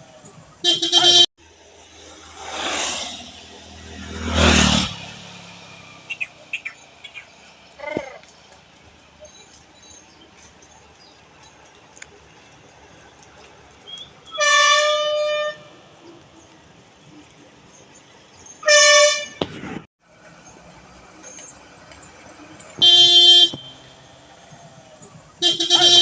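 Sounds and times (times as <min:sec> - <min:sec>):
vehicle horn blasts: 0:00.6 - 0:01.3, 0:14.4 - 0:15.7, 0:18.6 - 0:19.4, 0:22.8 - 0:23.9, 0:25.4 - 0:26.0.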